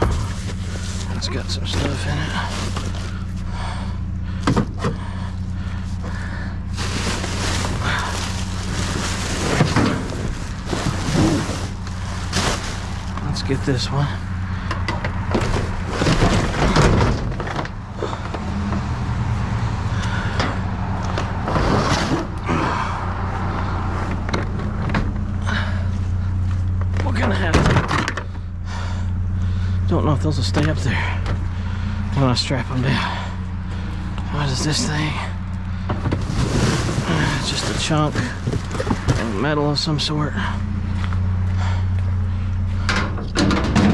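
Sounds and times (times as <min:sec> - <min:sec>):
junk rustling and scraping: 0:00.0 - 0:43.9
vehicle engine idling: 0:00.0 - 0:43.9
rattling scrape: 0:06.0 - 0:13.7, 0:14.6 - 0:18.4, 0:21.2 - 0:22.3, 0:32.8 - 0:40.6.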